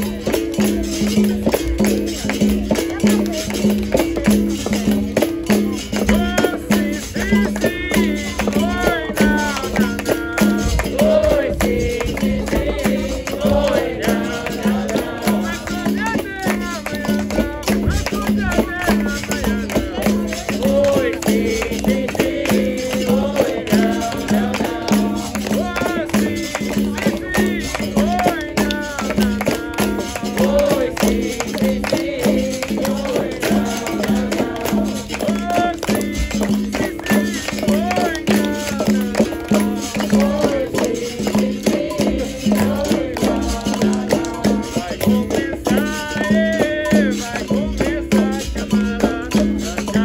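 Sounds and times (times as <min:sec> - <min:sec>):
berimbau rhythm: 0:00.0 - 0:50.0
pandeiro strokes: 0:00.0 - 0:50.0
shaker rattling: 0:00.0 - 0:50.0
person singing: 0:42.5 - 0:50.0.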